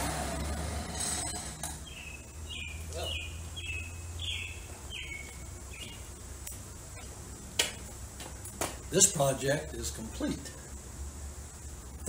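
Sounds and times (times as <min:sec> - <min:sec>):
songbird whistled notes: 0:01.8 - 0:06.0.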